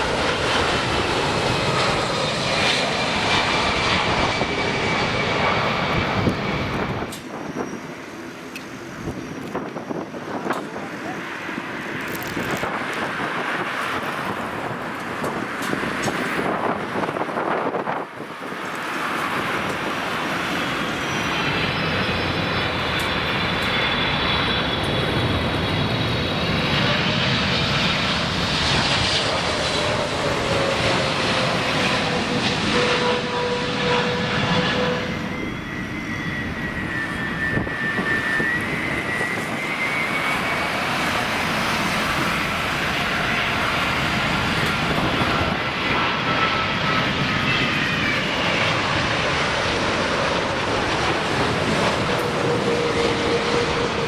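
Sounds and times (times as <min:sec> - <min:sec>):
jet engines roaring and whining: 0:00.0 - 0:54.0.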